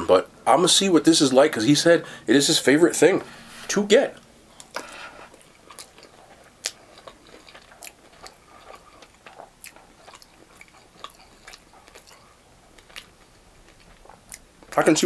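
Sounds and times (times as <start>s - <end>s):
chewing with mouth clicks: 4.5s - 14.9s.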